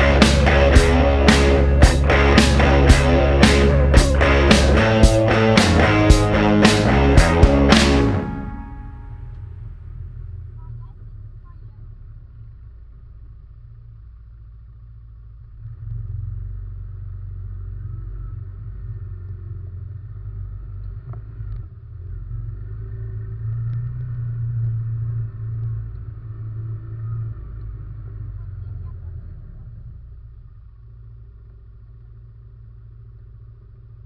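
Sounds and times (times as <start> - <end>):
atv engine rumbling: 0.0 - 9.2.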